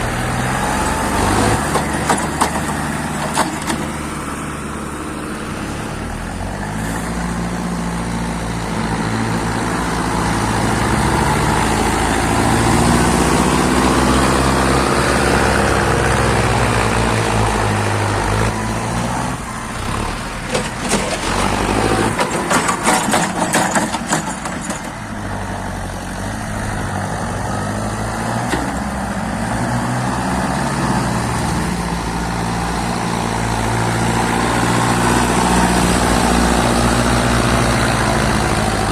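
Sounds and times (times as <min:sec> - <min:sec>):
tractor diesel engine under load: 0:00.0 - 0:38.9
rattling and knocking: 0:20.4 - 0:25.0.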